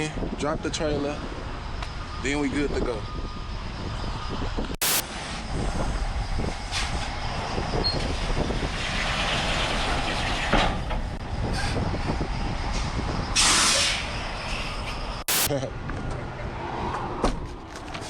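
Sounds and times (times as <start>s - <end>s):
diesel truck engine running: 0.9s - 15.5s
truck rig rattling and clanking: 5.2s - 15.3s.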